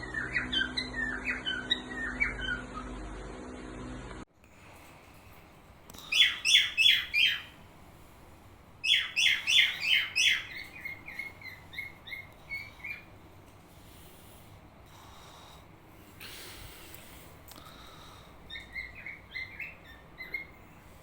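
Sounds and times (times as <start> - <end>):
cockatiel chirping: 0.0 - 2.9, 6.0 - 7.5, 8.8 - 13.1, 18.5 - 20.6.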